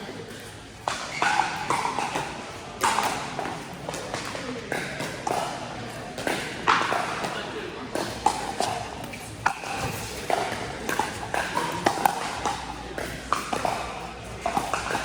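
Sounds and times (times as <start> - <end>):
paddles striking plastic balls: 8.0 - 15.0.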